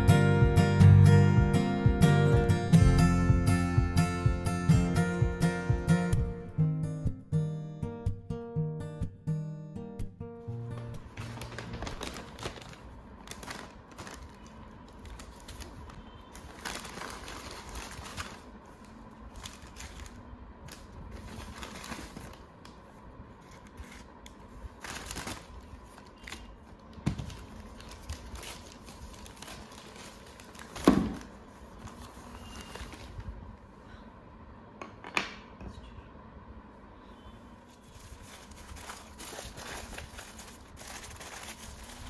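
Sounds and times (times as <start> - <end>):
rustling: 37.7 - 42.0.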